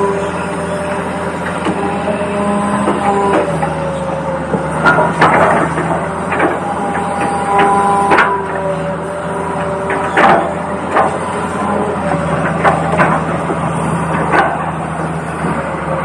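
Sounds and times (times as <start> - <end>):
toy excavator motor whining: 5.5 - 16.0.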